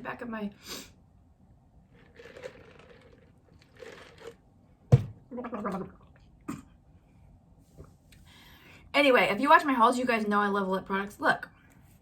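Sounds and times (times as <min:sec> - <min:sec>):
woman clearing her throat: 0:06.5 - 0:06.8.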